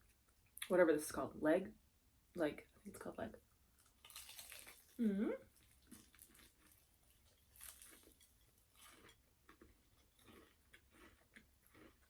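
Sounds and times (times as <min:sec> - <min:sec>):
chewing fried chicken: 0:03.8 - 0:12.0.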